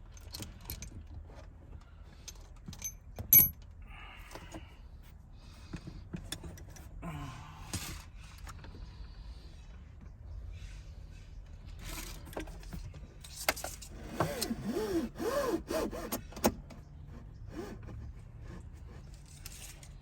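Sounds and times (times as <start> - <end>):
sharp ringing metallic clink: 2.8 - 3.6.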